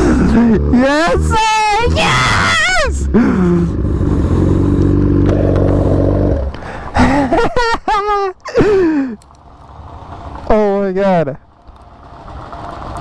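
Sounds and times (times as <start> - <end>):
excited shouting: 0.0 - 3.2
motorcycle engine running: 0.0 - 7.3, 9.1 - 13.0.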